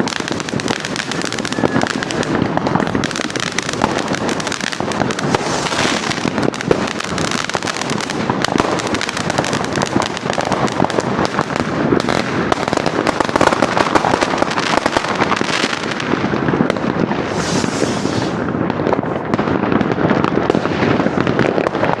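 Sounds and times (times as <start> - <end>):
fireworks crackling and banging: 0.0 - 22.0
rocket whooshing hiss: 0.6 - 8.3, 14.6 - 19.3.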